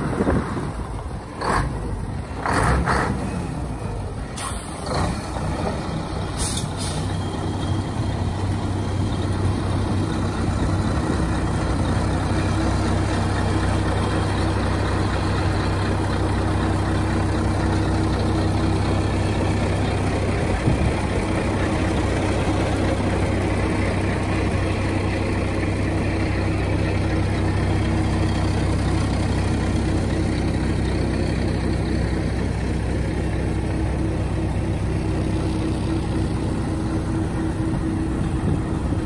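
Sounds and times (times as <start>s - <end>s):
diesel truck engine idling: 0.0s - 39.0s
air brake hisses: 4.4s - 4.8s, 6.4s - 7.2s.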